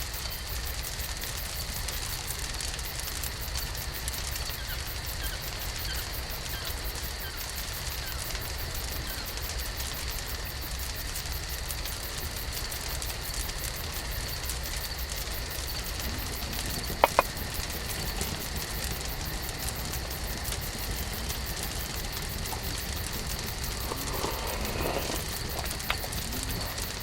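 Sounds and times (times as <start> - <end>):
campfire crackling: 0.0 - 27.0
sharp clicks: 16.9 - 17.7.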